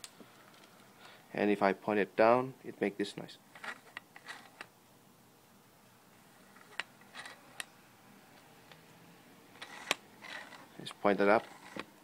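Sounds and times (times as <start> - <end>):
lens zoom ring rubbing: 3.6 - 4.6, 9.6 - 10.7, 11.4 - 11.9.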